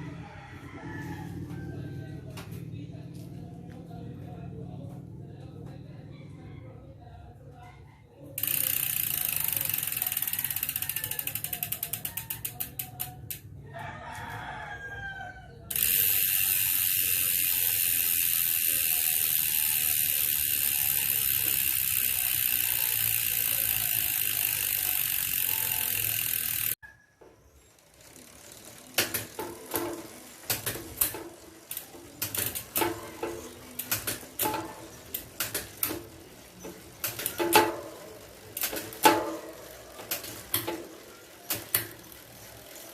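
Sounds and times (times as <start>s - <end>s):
high buzz of spinning wheel: 8.3s - 42.9s
bicycle freehub ratchet clicking: 8.4s - 13.6s, 15.7s - 26.8s, 27.8s - 42.9s.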